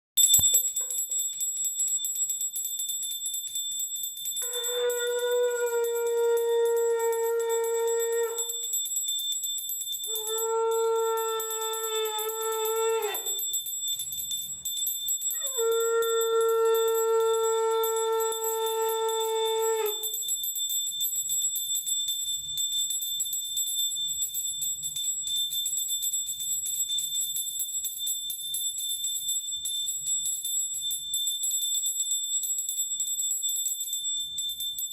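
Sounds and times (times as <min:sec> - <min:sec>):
conch shell blown: 0:04.4 - 0:08.7, 0:10.1 - 0:13.4, 0:15.4 - 0:20.1.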